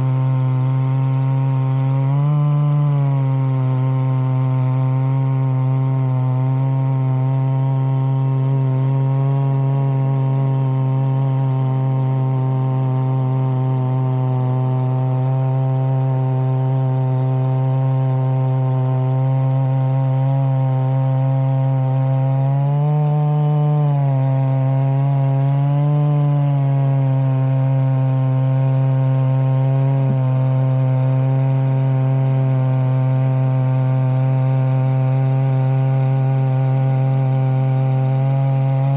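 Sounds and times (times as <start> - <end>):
chainsaw milling a log: 0.0 - 38.9.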